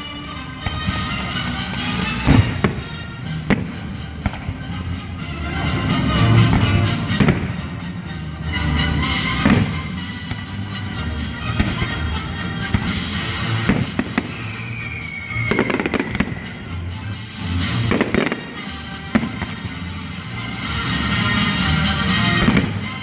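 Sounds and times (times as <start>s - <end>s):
fireworks booms and cracks: 0.0s - 5.0s, 5.6s - 8.0s, 8.8s - 10.6s, 12.6s - 16.8s, 17.6s - 20.1s, 20.9s - 23.0s
fireworks crackling: 0.0s - 23.0s.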